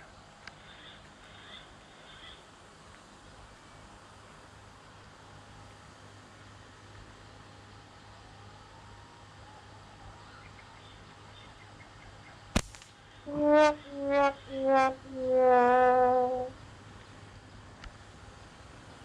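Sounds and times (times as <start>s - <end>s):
sharp click: 12.6s - 12.9s
horn-like notes: 13.3s - 16.6s.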